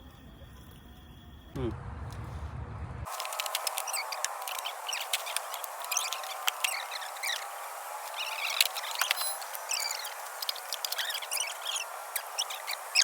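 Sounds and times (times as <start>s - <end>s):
small birds chirping: 3.1s - 13.0s.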